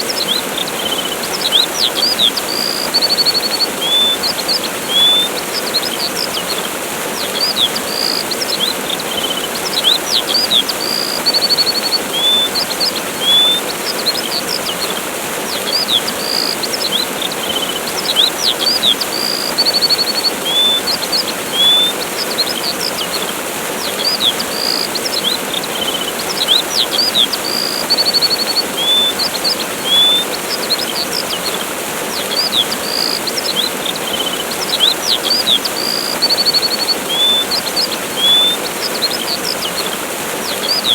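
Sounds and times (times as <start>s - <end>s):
small birds chirping: 0.0s - 40.9s
waterfall rushing: 0.0s - 40.9s.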